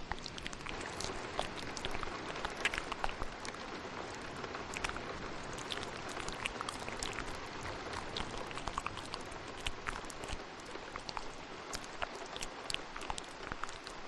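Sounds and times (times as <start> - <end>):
rain hiss: 0.0 - 14.0
wet mouth clicks and smacks: 0.0 - 14.0.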